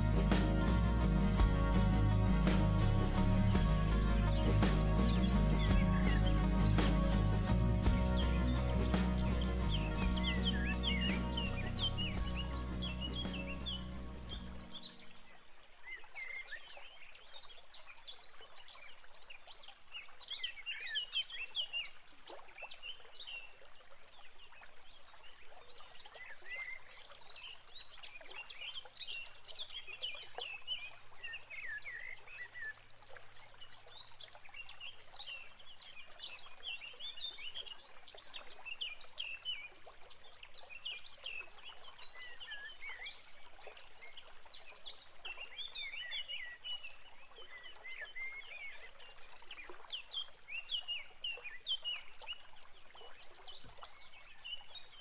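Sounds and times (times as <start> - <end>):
small birds chirping: 0.0 - 15.1.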